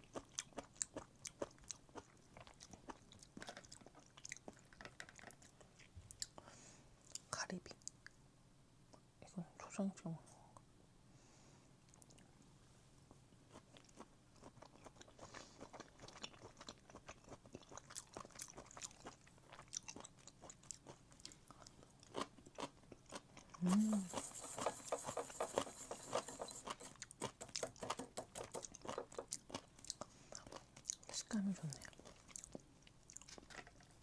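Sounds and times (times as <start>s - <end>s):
wet chewing: 13.5s - 34.0s.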